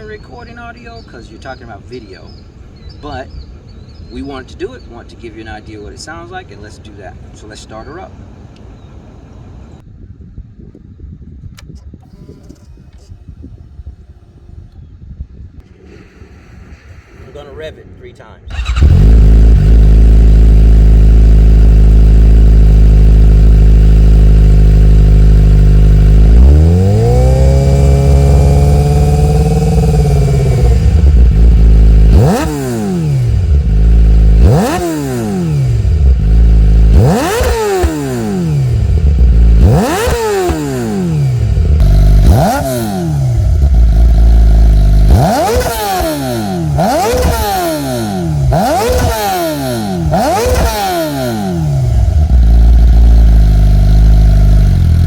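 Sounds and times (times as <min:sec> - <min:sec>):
motorcycle engine revving: 0:18.4 - 0:55.0
motorcycle engine idling: 0:18.5 - 0:55.0.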